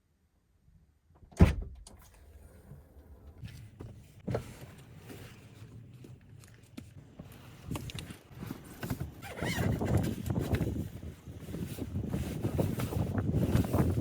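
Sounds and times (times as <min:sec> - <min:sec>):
rustling and handling noise: 0:03.3 - 0:14.0.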